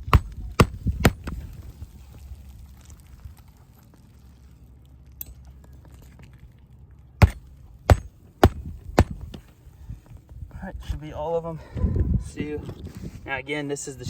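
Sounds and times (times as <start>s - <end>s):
hammer striking nails: 0.0s - 1.3s, 7.2s - 9.3s.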